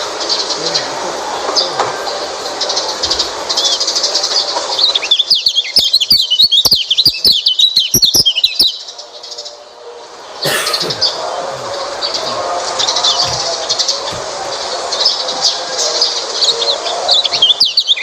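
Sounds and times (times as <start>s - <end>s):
bird twittering song: 0.0s - 18.0s
scattered bird chirps: 4.8s - 8.9s.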